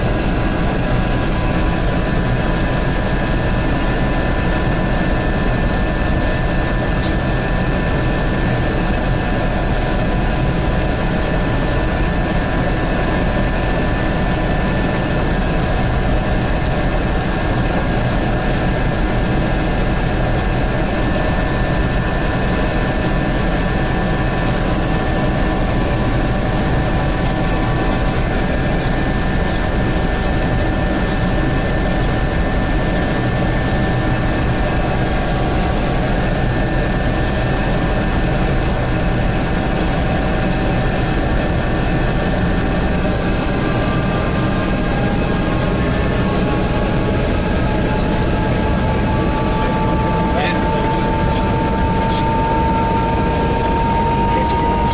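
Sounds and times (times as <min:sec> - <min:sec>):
helicopter engine and rotor: 0:00.0 - 0:54.9
high whining tones: 0:44.1 - 0:54.9.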